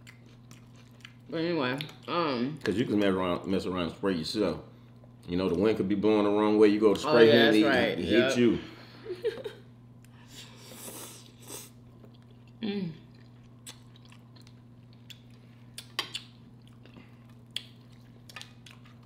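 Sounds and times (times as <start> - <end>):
chewing and biting food: 0.0 - 3.1, 11.4 - 19.0
steady low hum: 0.0 - 19.0.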